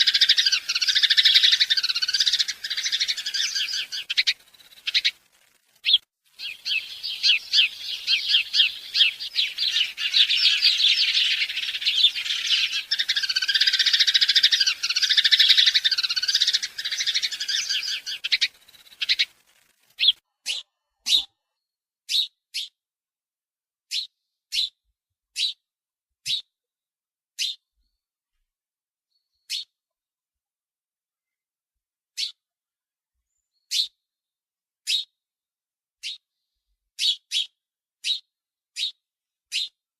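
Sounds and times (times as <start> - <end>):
small birds chirping: 0.0 - 22.8, 23.9 - 24.8, 25.4 - 25.6, 26.2 - 26.5, 27.4 - 28.0, 29.1 - 29.8, 32.2 - 32.4, 33.3 - 34.0, 34.9 - 35.2, 36.0 - 39.8.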